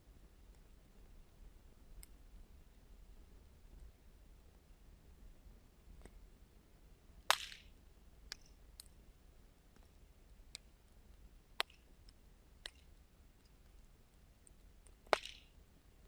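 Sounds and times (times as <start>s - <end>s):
wood fire crackling and popping: 7.2s - 9.1s, 9.7s - 16.0s.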